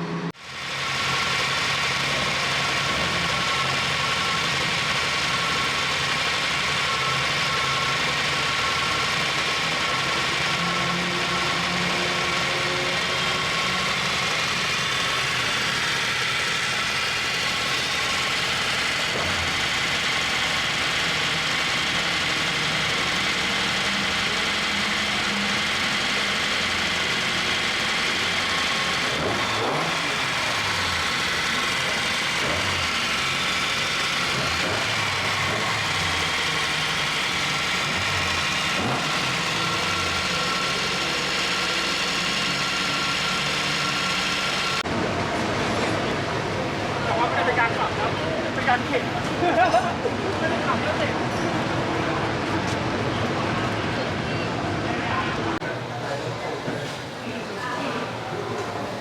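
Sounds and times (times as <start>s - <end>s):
car engine running: 0.0s - 56.1s.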